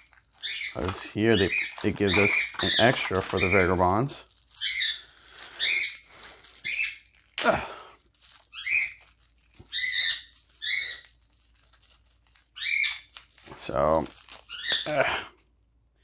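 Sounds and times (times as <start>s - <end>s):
pet bird chirping: 0.0s - 7.1s, 8.5s - 11.2s, 12.5s - 13.2s, 14.5s - 14.9s
plastic packaging crinkling: 0.0s - 15.2s.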